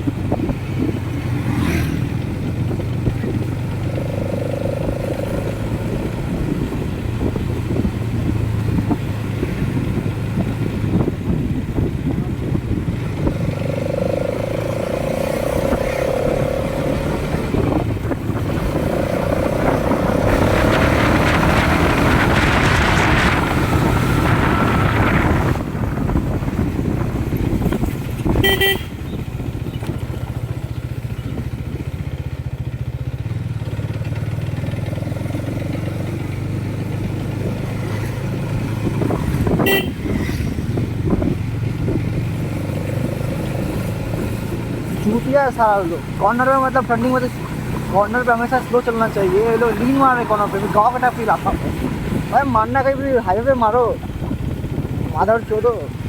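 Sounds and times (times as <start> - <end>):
motorcycle engine running: 0.0 - 56.0
short horn beeps: 28.4 - 29.2, 39.6 - 40.3.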